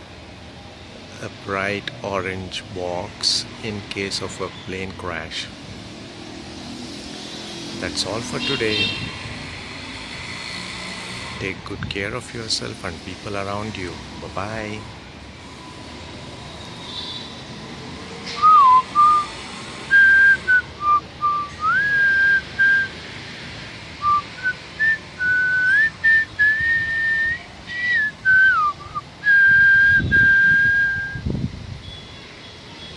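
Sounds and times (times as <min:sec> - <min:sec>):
person whistling a tune: 0:18.4 - 0:19.3, 0:19.9 - 0:23.0, 0:24.0 - 0:31.2.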